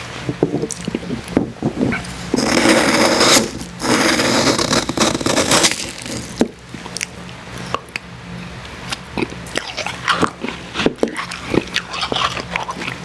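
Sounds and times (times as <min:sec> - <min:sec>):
icy crunching and scraping: 0:00.7 - 0:07.0
chewing and mouth clicks: 0:06.8 - 0:13.0.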